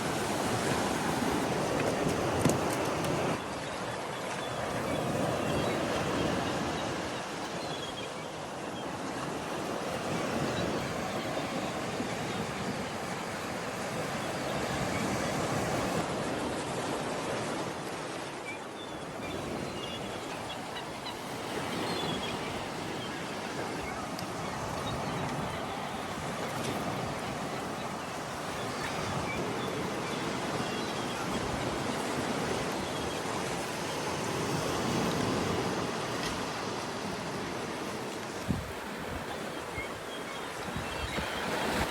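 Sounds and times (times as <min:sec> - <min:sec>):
sea surf rushing: 0:00.0 - 0:07.6
sea surf: 0:00.0 - 0:41.9
wind: 0:00.0 - 0:41.9.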